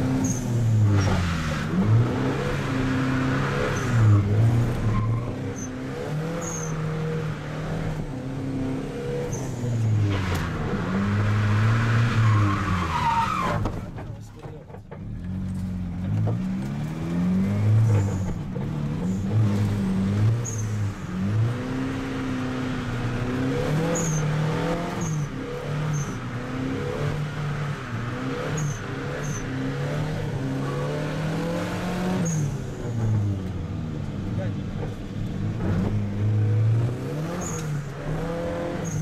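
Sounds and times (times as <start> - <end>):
car engine revving: 15.2 - 39.0.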